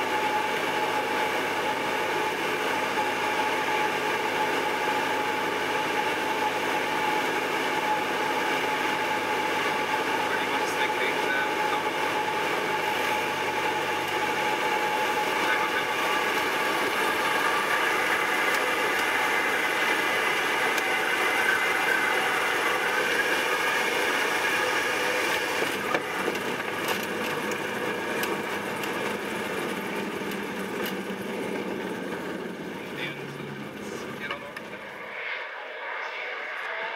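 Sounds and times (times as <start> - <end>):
propeller plane engine droning: 0.0 - 36.9.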